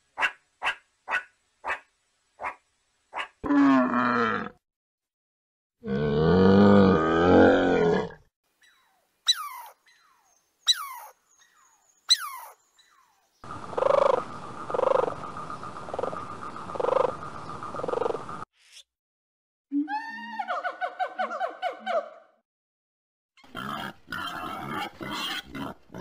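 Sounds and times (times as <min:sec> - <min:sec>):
squirrel chirps: 0:08.6 - 0:15.3
rhythmic pulsing animal calls: 0:13.4 - 0:18.4.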